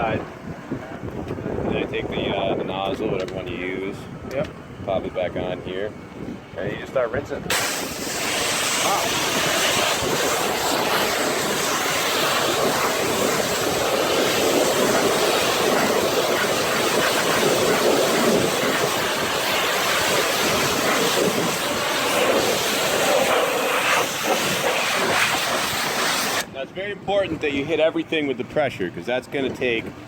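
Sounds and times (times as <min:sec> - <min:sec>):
pressure washer spraying water: 0:07.5 - 0:26.5.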